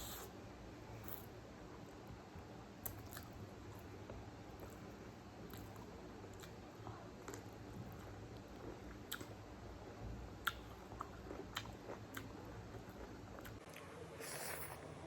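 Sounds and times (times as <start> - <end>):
chewing and mouth smacks: 4.6 - 9.4, 10.4 - 13.8.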